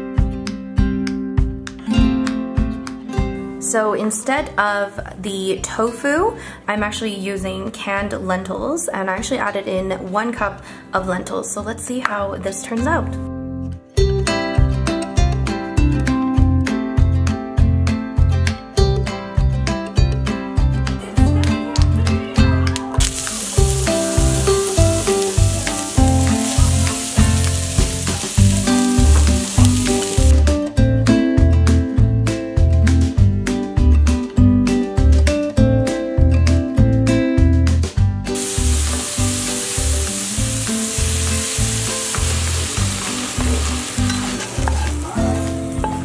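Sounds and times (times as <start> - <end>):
background music with a beat: 0.0 - 3.6, 14.0 - 44.8
vegetables sizzling in a frying pan: 23.0 - 30.5, 38.4 - 46.0.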